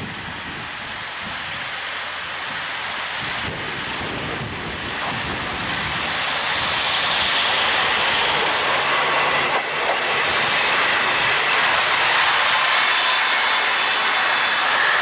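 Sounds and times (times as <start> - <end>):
diesel train approaching: 0.0 - 15.0.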